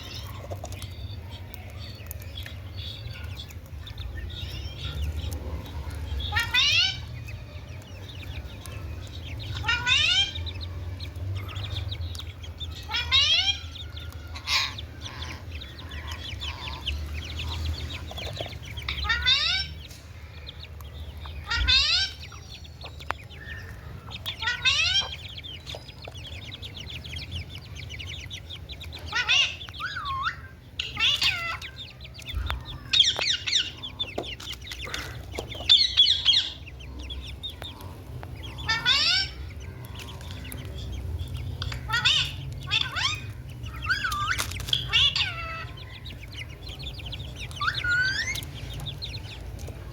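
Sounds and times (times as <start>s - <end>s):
parrot squawking: 6.2s - 7.1s, 9.5s - 10.5s, 12.7s - 18.0s, 18.7s - 19.8s, 21.4s - 22.5s, 23.4s - 25.9s, 28.9s - 34.0s, 35.7s - 36.7s, 38.5s - 40.5s, 41.6s - 48.6s.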